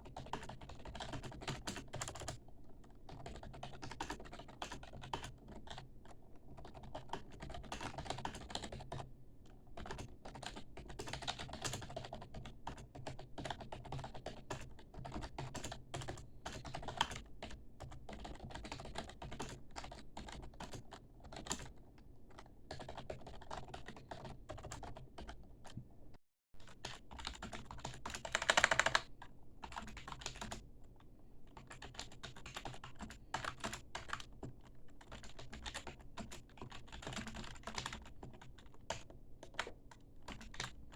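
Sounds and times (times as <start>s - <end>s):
fast typing on keyboard: 0.0s - 25.8s, 26.6s - 30.7s, 31.5s - 40.9s.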